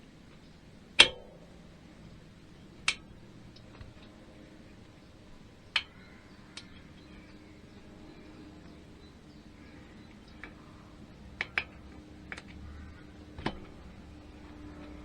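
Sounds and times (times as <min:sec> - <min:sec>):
faint steady hum: 0:00.0 - 0:15.0
light clicks and taps of tools: 0:11.4 - 0:13.9.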